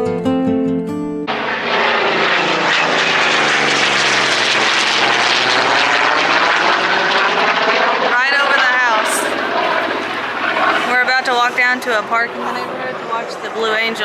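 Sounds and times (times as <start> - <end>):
guitar music: 0.0 - 1.8
jet aircraft roaring overhead: 1.3 - 14.0.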